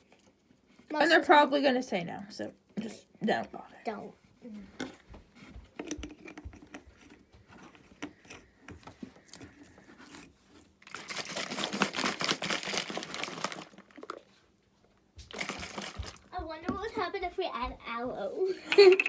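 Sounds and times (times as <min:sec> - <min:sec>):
crinkling handling noise: 0:04.8 - 0:16.3.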